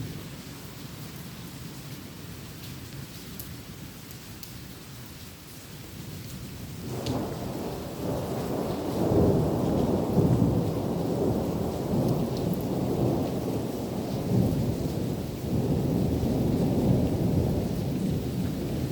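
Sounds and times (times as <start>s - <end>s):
steady rain: 0.0s - 18.9s
thunder rumbling: 6.9s - 18.9s.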